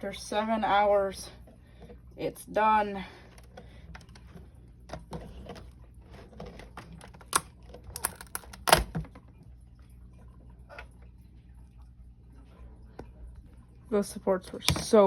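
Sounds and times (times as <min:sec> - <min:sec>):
plastic supports snapping off: 0:06.8 - 0:09.1.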